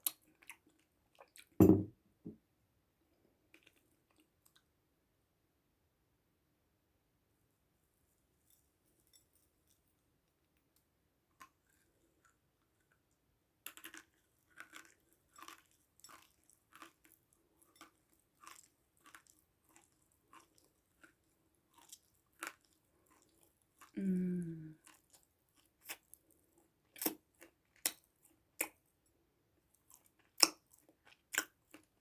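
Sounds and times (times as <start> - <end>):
crunchy chewing: 13.7 - 24.0.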